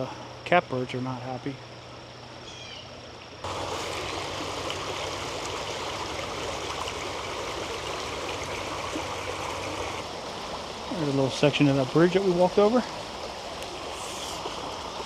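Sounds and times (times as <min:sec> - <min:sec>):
short bird calls: 0:02.4 - 0:02.9
creek flowing over rocks: 0:03.4 - 0:15.0.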